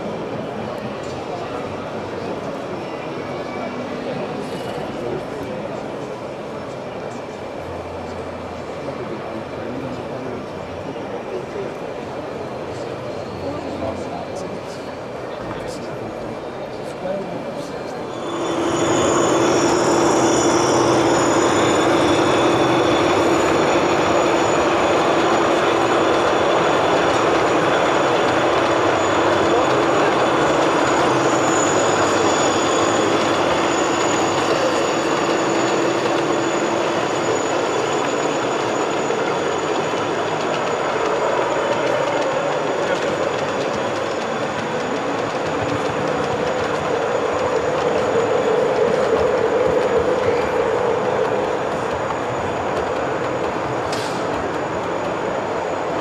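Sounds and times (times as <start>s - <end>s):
model locomotive running: 0.0s - 56.0s
higher hum: 18.0s - 41.8s
low hum: 18.1s - 39.2s.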